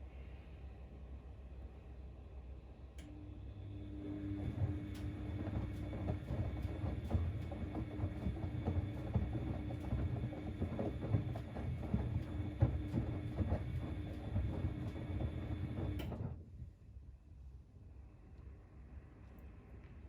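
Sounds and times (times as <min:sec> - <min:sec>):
washing machine drum turning: 0:04.4 - 0:16.2.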